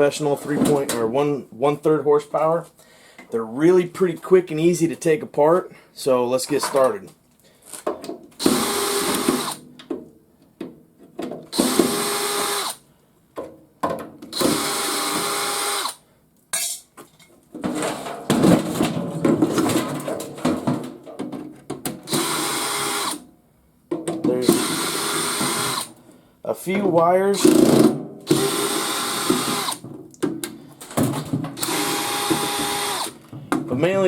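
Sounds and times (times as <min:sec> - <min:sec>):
cordless drill running: 0:08.4 - 0:09.6, 0:11.6 - 0:12.8, 0:14.4 - 0:16.0, 0:22.1 - 0:23.2, 0:24.4 - 0:25.9, 0:27.4 - 0:29.8, 0:31.6 - 0:33.2.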